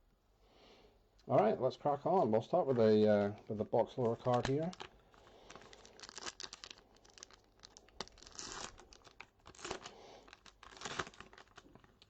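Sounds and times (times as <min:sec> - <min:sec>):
plastic wrapper tearing and crinkling: 0:02.7 - 0:12.0.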